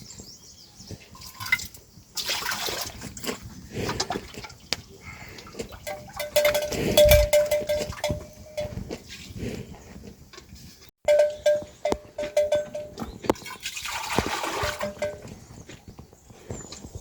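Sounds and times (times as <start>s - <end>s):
water splashing: 1.3s - 3.4s, 13.4s - 15.2s
dishes knocking and clattering: 5.7s - 8.8s, 11.0s - 13.5s, 14.2s - 15.4s
held ringing note: 5.9s - 8.8s.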